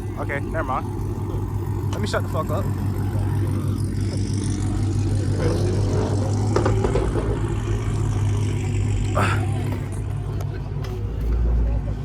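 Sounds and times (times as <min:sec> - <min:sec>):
faint voices: 0:00.0 - 0:12.0
vehicle engine humming: 0:00.0 - 0:12.0.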